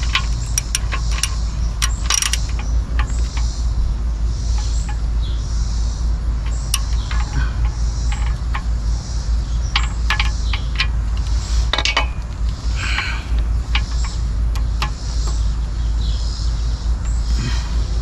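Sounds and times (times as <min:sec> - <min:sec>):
small metallic clinks and taps: 0:00.0 - 0:03.5, 0:06.4 - 0:08.8, 0:09.7 - 0:15.4
steady low rumble: 0:00.0 - 0:18.0.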